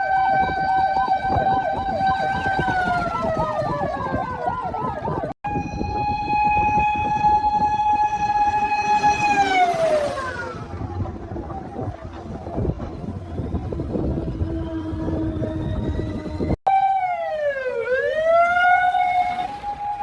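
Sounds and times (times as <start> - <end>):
fire truck siren: 0.0 - 20.0
low vehicle rumble: 5.5 - 16.6.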